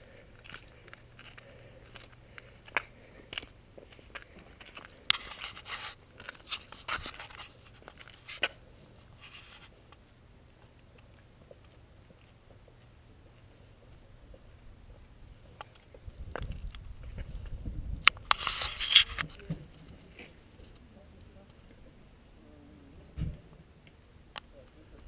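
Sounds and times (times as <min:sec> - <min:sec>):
faint steady background: 0:00.0 - 0:25.0
crunches clicks and scrapes: 0:00.4 - 0:08.6, 0:18.0 - 0:20.8.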